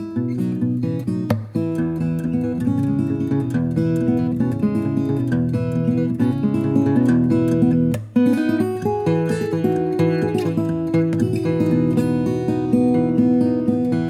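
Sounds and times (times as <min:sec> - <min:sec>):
fingerstyle acoustic guitar: 0:00.0 - 0:14.0.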